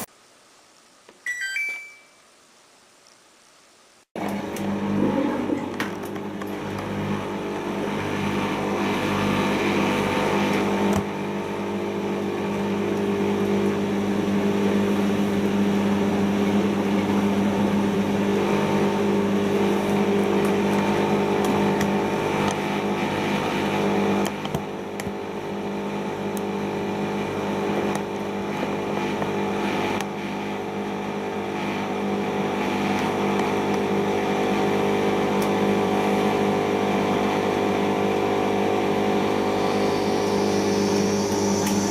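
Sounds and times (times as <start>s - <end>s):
washing machine spinning: 4.2s - 41.9s.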